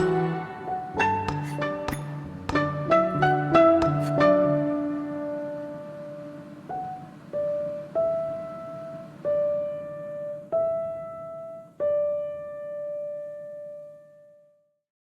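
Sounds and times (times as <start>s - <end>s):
slow piano melody: 0.0s - 14.6s.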